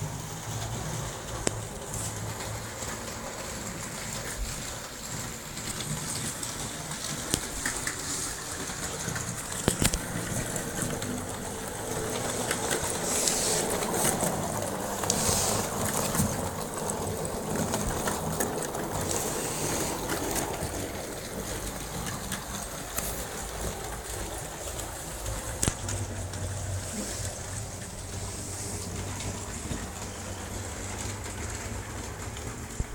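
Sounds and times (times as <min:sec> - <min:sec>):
model train motor whirring: 0:00.0 - 0:26.0
scattered clicks: 0:05.6 - 0:19.4.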